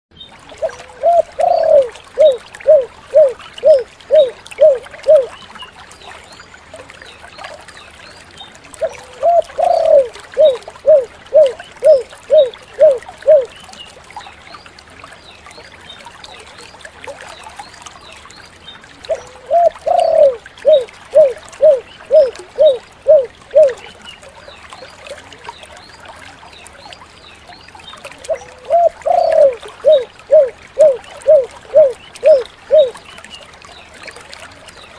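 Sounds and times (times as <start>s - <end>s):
dove cooing: 0.6s - 5.3s, 8.8s - 13.5s, 19.1s - 23.8s, 28.3s - 32.9s.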